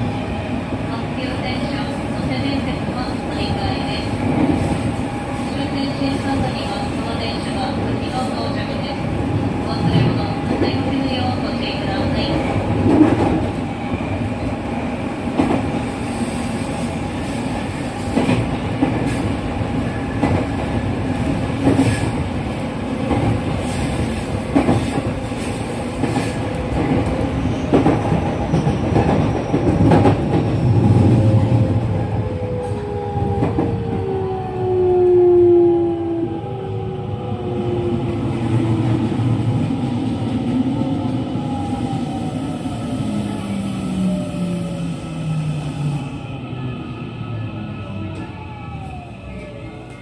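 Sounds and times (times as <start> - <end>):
train rolling noise: 0.0 - 50.0.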